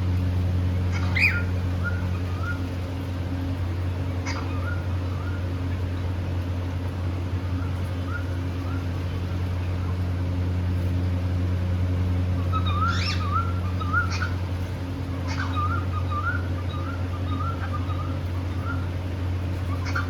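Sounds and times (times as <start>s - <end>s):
steady low hum: 0.0s - 20.0s
cockatiels chirping and warbling: 0.9s - 2.6s, 4.2s - 5.4s, 12.5s - 14.4s, 15.2s - 18.8s, 19.7s - 20.0s.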